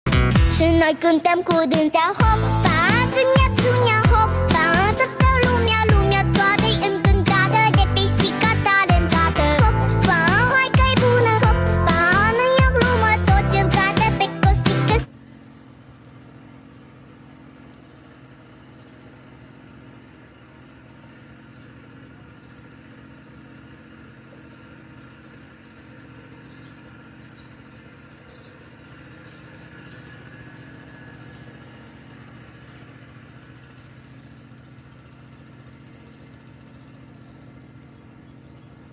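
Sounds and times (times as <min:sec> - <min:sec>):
low motor hum: 0:00.1 - 0:38.9
faint ticks: 0:30.4 - 0:30.7, 0:33.4 - 0:33.6, 0:37.7 - 0:38.0.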